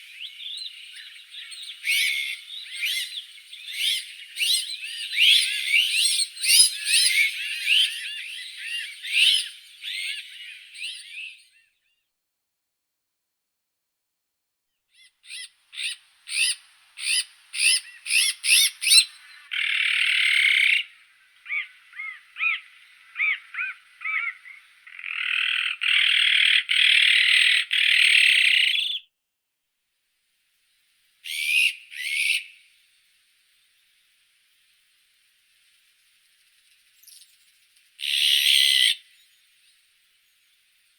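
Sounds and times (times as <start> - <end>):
magpie calling: 0.0 - 11.2, 15.0 - 29.0, 31.2 - 32.6, 38.0 - 39.1
soft bird chirps: 0.0 - 12.1, 14.9 - 29.1, 30.0 - 40.9
harsh grating bird rasps: 15.0 - 29.0, 31.2 - 32.6, 38.0 - 39.0.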